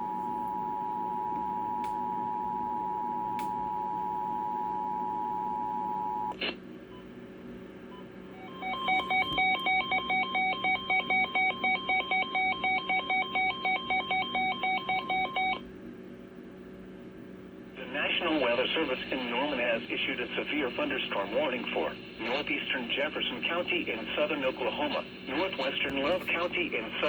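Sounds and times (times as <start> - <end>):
faint steady hum: 0.0 - 27.0
click: 3.4 - 3.6
touch-tone beeps: 8.4 - 15.6.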